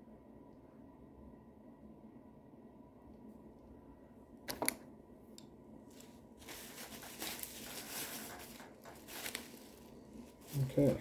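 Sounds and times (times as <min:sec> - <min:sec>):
packaging rustling: 0:05.9 - 0:11.0.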